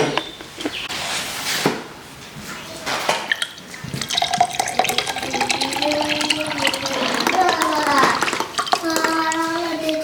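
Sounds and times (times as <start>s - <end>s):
liquid pouring into a glass: 3.3s - 10.0s.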